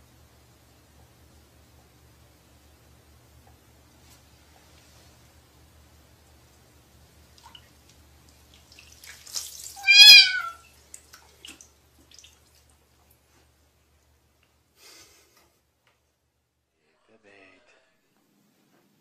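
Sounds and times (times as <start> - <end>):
cat meowing: 9.8 - 10.6.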